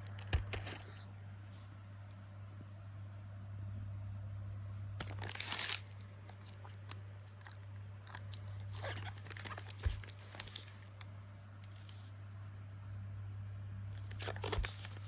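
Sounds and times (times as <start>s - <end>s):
packaging crinkling and rustling: 0.0s - 1.1s, 5.0s - 12.1s, 14.0s - 15.0s
steady low hum: 0.0s - 15.0s.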